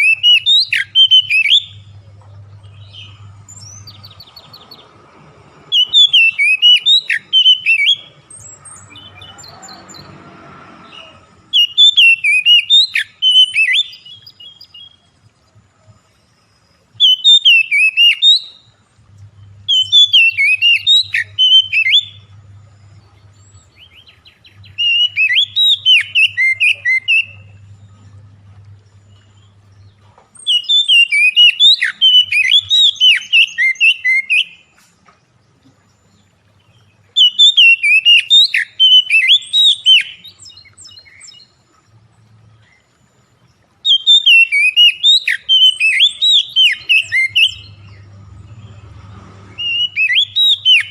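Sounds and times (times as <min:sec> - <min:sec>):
bird singing whistled notes: 0:00.0 - 0:04.9, 0:05.7 - 0:10.2, 0:10.8 - 0:15.2, 0:15.8 - 0:28.2, 0:29.0 - 0:34.8, 0:35.9 - 0:41.6, 0:43.8 - 0:48.9, 0:49.5 - 0:50.9
faint low hum: 0:00.6 - 0:05.7, 0:18.5 - 0:25.6, 0:26.2 - 0:30.5.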